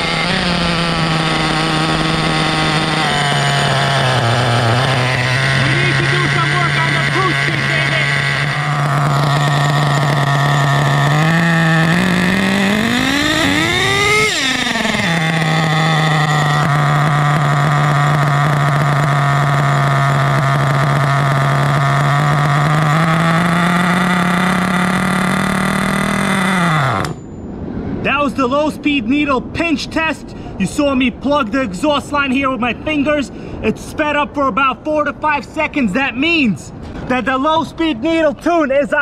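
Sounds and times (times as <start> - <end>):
model nitro engine idling and revving: 0.0 - 27.3.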